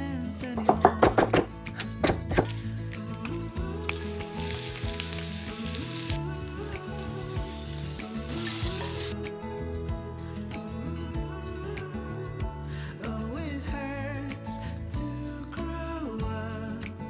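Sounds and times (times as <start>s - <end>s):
knife chopping on wooden board: 0.8s - 2.6s
chicken sizzling in a skillet: 2.5s - 9.2s.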